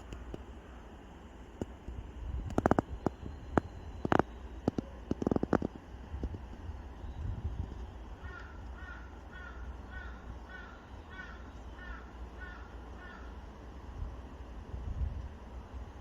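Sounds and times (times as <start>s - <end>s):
steady low rumble: 0.0s - 16.0s
crow cawing: 8.2s - 13.4s.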